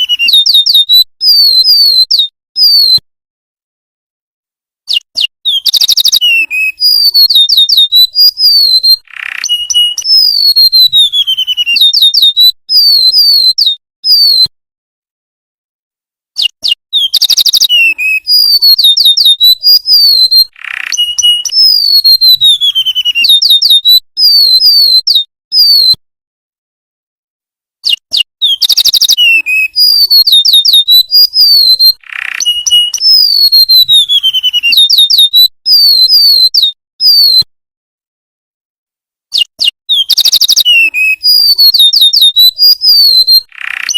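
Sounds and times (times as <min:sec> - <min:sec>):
bird whistling song: 0:00.0 - 0:03.0, 0:04.9 - 0:14.5, 0:16.4 - 0:26.0, 0:27.8 - 0:37.5, 0:39.3 - 0:43.9.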